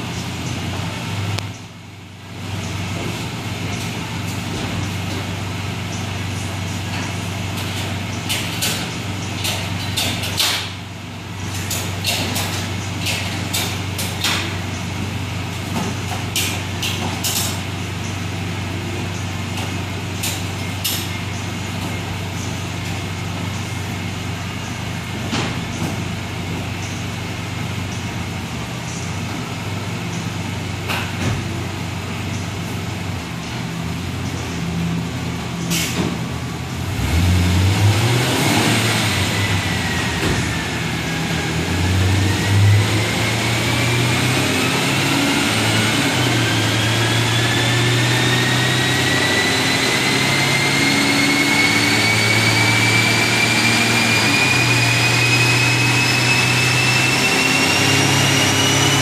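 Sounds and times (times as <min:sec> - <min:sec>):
car engine idling: 0:00.0 - 0:38.0
whine rising in pitch: 0:38.8 - 0:59.0.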